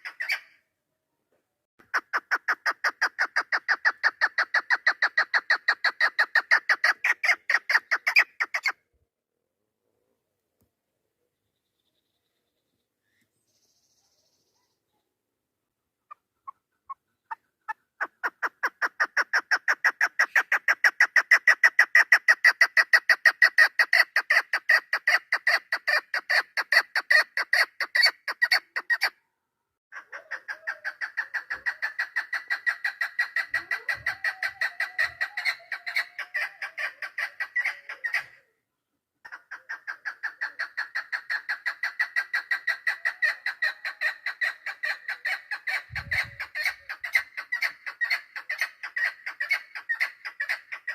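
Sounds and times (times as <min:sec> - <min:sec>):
partridge clucking calls: 0:00.0 - 0:00.5, 0:01.8 - 0:08.8, 0:16.1 - 0:29.1, 0:29.9 - 0:38.5, 0:39.2 - 0:50.9.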